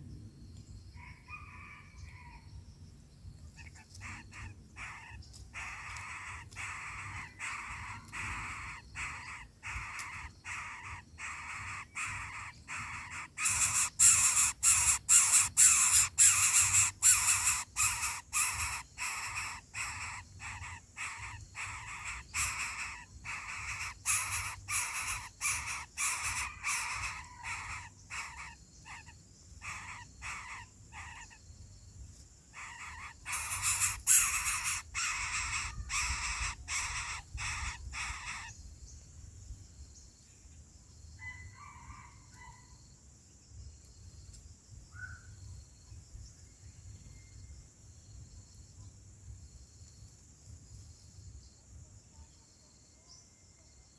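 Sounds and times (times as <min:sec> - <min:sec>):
harsh rasping bird calls: 0:03.5 - 0:31.4, 0:32.5 - 0:38.6.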